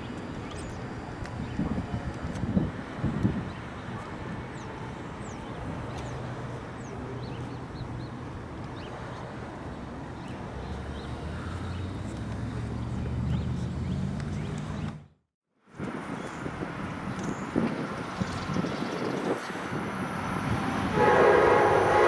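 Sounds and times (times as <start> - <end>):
low train hum: 0.0 - 13.0, 15.8 - 22.0
small birds chirping: 16.1 - 20.9.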